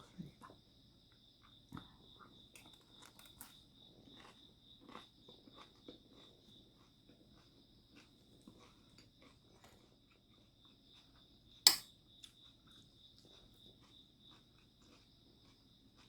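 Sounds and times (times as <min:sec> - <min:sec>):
faint chewing: 0:00.2 - 0:16.0
utensil clacking on dish: 0:11.7 - 0:11.9.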